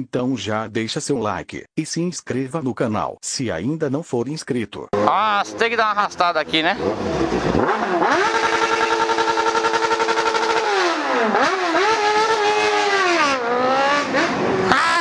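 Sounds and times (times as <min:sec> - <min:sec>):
motorcycle engine revving: 0:05.0 - 0:15.0.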